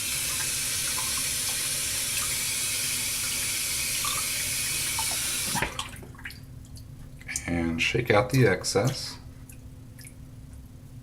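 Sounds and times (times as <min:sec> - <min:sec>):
tap water running: 0:00.0 - 0:06.8.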